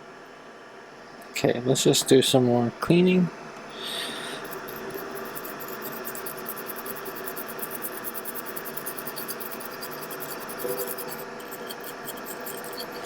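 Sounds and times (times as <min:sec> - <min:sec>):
hand tool scratching circuit board: 0:04.4 - 0:13.0.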